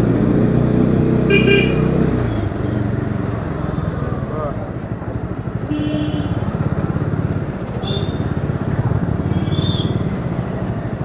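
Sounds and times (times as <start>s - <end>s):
motorcycle engine running: 0.0s - 11.0s
traffic: 0.0s - 11.0s
high vehicle horn beeps: 1.3s - 2.1s.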